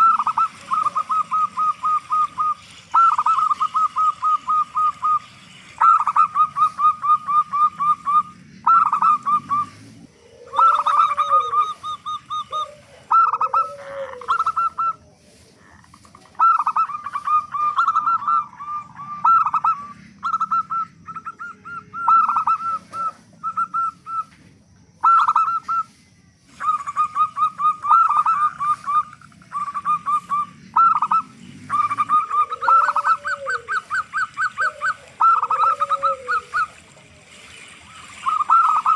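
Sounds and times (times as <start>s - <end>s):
doves calling: 0.0s - 38.9s
low rounded coos: 5.8s - 24.2s, 26.5s - 38.9s.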